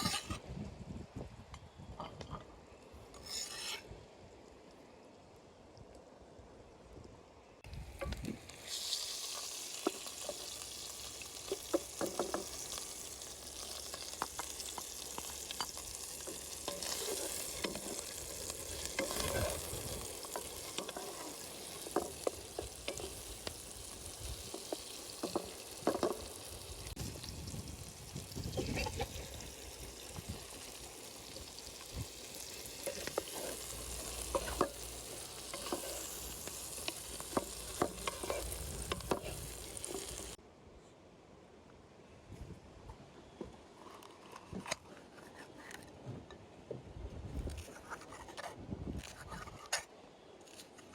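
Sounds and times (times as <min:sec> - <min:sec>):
utensil scraping a pot: 0:00.0 - 0:00.4, 0:03.1 - 0:03.9, 0:08.7 - 0:26.3, 0:32.2 - 0:40.4
food sizzling in hot oil: 0:07.9 - 0:40.4.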